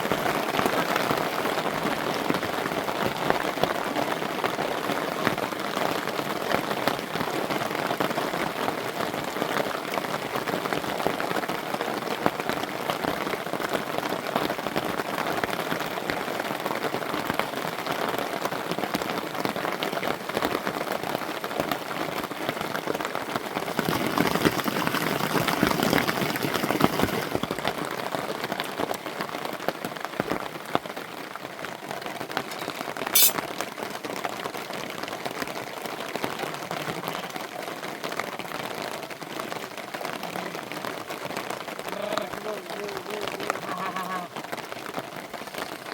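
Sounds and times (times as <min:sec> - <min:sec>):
rain pattering: 0:00.0 - 0:45.9
sharp high click: 0:33.2 - 0:33.4.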